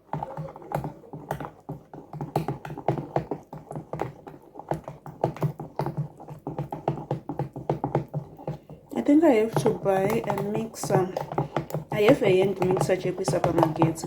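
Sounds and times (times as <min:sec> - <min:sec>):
utensil tapping against bowl: 0:00.1 - 0:14.0.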